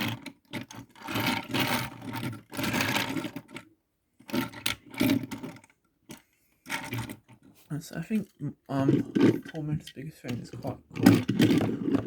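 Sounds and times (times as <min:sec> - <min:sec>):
toy cars scraping: 0:00.0 - 0:03.7, 0:04.3 - 0:12.0.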